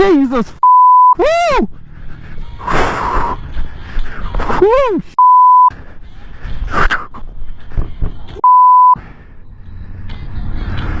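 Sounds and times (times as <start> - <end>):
censor bleep tone: 0.6 - 1.2, 5.2 - 5.7, 8.4 - 9.0.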